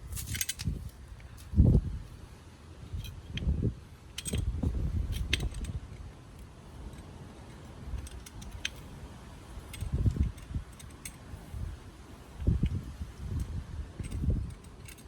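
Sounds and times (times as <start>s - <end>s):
metallic clicks of tools: 0.1s - 1.5s, 4.1s - 8.9s, 9.6s - 11.3s, 12.4s - 15.0s.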